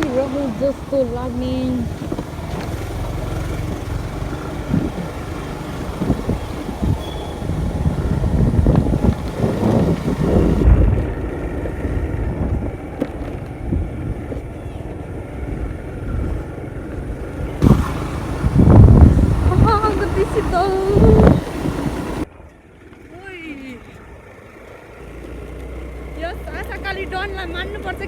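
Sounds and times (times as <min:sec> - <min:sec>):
wind buffeting microphone: 0:00.0 - 0:22.3
scooter engine running: 0:00.0 - 0:28.0.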